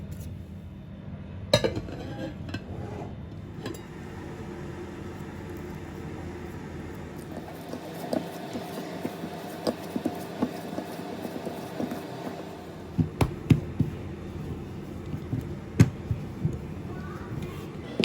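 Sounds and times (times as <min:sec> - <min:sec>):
steady low hum: 0:00.0 - 0:18.0
kitchen utensils tapping a bowl: 0:01.6 - 0:02.0.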